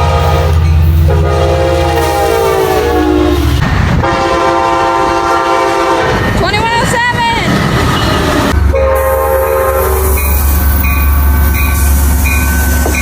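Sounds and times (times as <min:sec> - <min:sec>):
locomotive air horn blasts: 0:00.0 - 0:06.3, 0:08.1 - 0:10.2
heavy rumble of passing train: 0:00.0 - 0:13.0.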